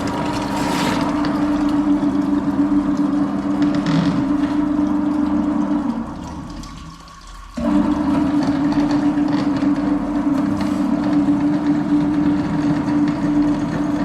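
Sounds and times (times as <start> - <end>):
rough mechanical noise: 0.0 - 6.2, 7.6 - 14.0
motor humming: 0.0 - 6.5.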